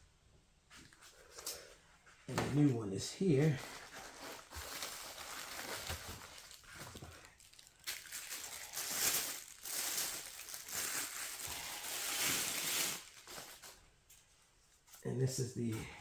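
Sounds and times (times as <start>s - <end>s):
packaging rustling and crinkling: 2.5s - 13.8s.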